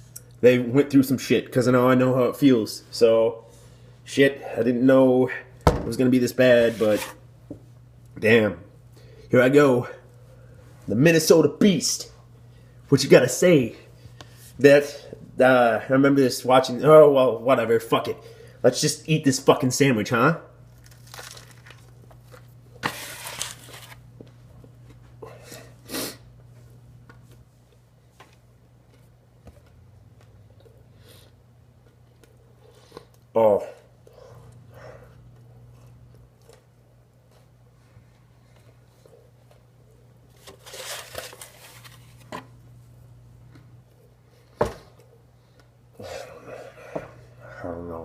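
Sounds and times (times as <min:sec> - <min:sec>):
steady low hum: 0:00.0 - 0:48.0
food wrapper rustling: 0:20.7 - 0:24.1, 0:40.3 - 0:42.4
person chewing: 0:28.8 - 0:36.8.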